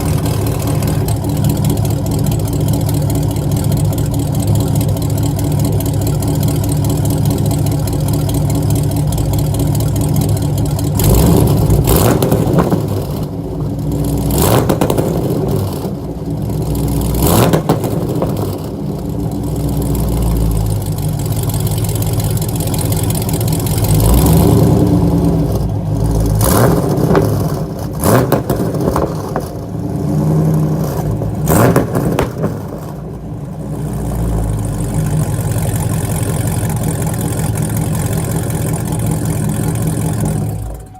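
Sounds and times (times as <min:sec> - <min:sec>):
loud car exhaust: 0:00.0 - 0:40.9
exhaust cracks and pops: 0:17.1 - 0:24.2, 0:25.5 - 0:34.0.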